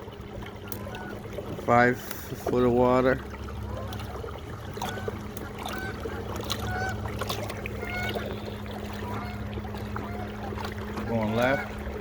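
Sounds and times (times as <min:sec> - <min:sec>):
water noise: 0:00.0 - 0:12.0
waterfowl honking: 0:00.6 - 0:01.3, 0:03.6 - 0:11.8.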